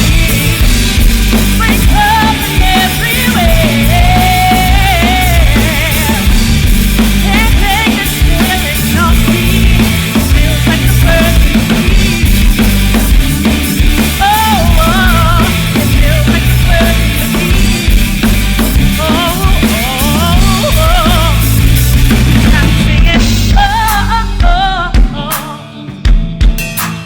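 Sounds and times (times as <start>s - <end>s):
band playing: 0.0s - 27.0s.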